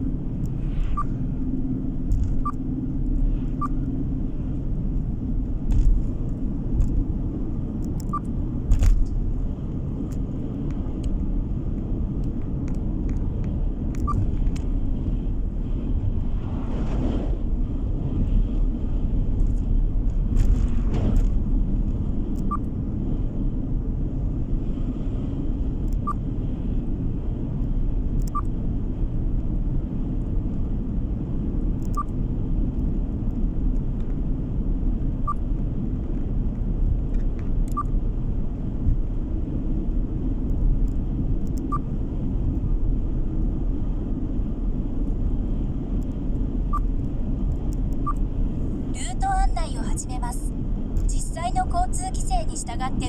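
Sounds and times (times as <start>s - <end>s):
road and engine rumble: 0.0s - 53.0s
faint short ticks: 12.2s - 14.7s, 25.8s - 26.2s, 27.6s - 28.5s, 31.8s - 32.2s.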